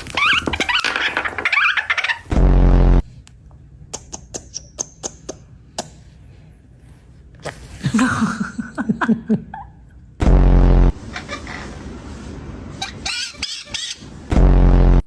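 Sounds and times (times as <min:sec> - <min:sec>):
person chuckling: 0:07.6 - 0:10.0.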